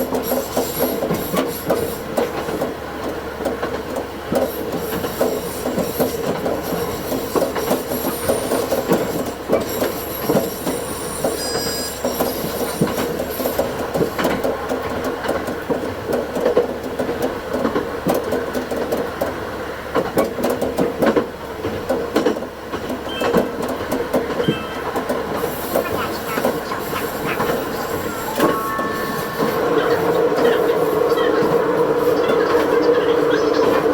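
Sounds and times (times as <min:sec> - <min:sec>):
railcar engine drone: 0:00.0 - 0:33.9
faint high squeals: 0:09.7 - 0:13.6, 0:23.0 - 0:23.6, 0:24.3 - 0:32.4.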